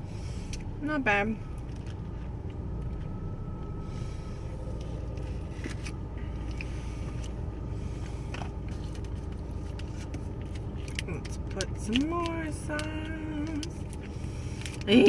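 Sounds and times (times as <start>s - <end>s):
low rumble inside car: 0.0s - 15.0s
faint eating clicks and scrapes: 4.7s - 14.9s.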